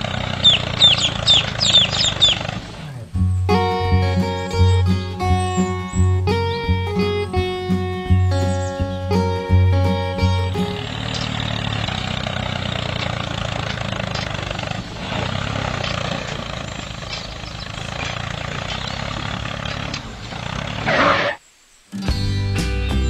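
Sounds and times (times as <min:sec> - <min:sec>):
small motor running: 0:00.0 - 0:03.1, 0:10.6 - 0:20.9.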